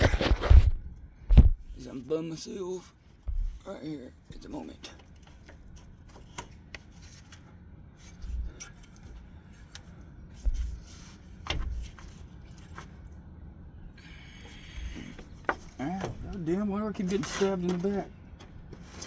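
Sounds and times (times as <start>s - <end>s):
microphone rubbing against clothing: 0.0s - 1.8s.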